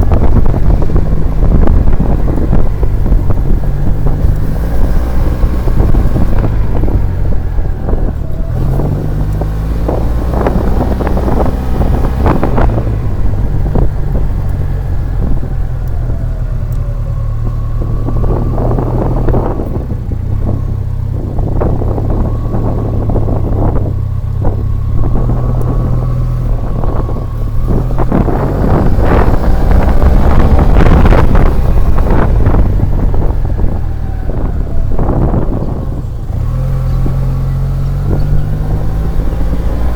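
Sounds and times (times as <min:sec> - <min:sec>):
scooter engine and exhaust: 0:00.0 - 0:39.9
wind on microphone: 0:00.0 - 0:39.9.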